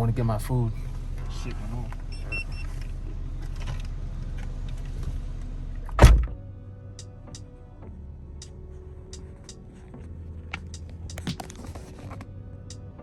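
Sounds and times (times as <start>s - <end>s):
car engine idling: 0.0s - 7.6s
car door slamming: 5.9s - 6.4s
music playing: 6.2s - 13.0s.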